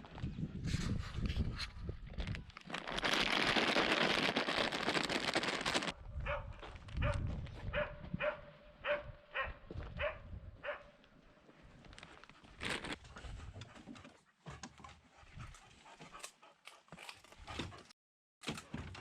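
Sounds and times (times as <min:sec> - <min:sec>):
dog barking: 0:06.2 - 0:11.0.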